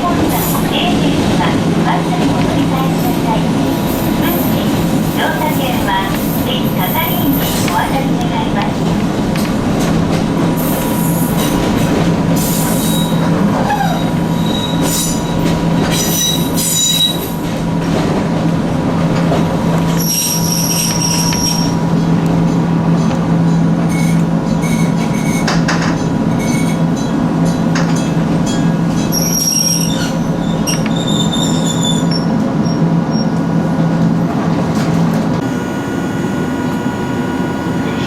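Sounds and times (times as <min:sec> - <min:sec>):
wheels clicking on track: 0:00.2 - 0:13.0
high-pitched wheel squeals: 0:20.0 - 0:21.8, 0:29.1 - 0:33.3
electric train motor hum: 0:35.4 - 0:38.0.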